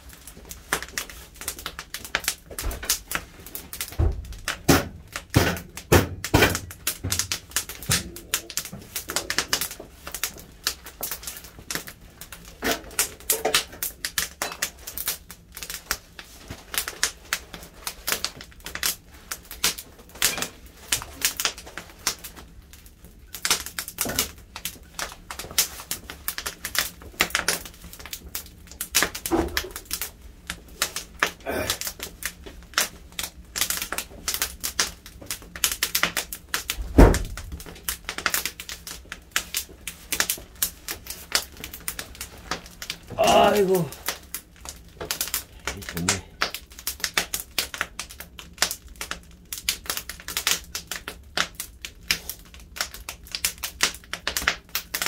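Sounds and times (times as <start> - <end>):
firewood crackling: 0.0 - 55.0
heavy thump: 36.9 - 37.3.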